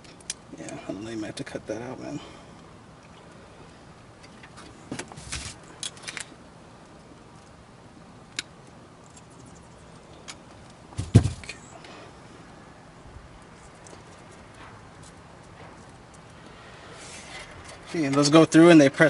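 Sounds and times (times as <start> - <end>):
loud knock: 11.0 - 11.5.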